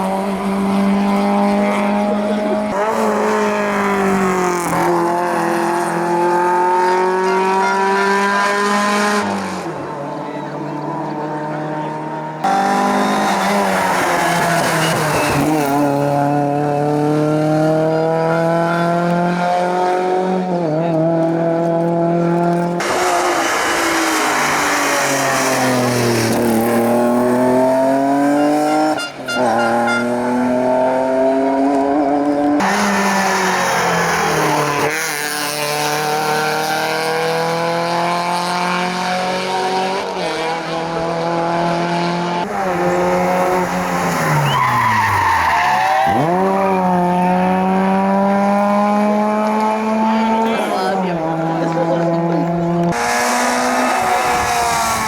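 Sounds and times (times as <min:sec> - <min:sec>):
race car engine at full throttle: 0:00.0 - 0:55.0
tyre squeal: 0:12.8 - 0:16.2, 0:28.1 - 0:30.3, 0:42.5 - 0:46.9.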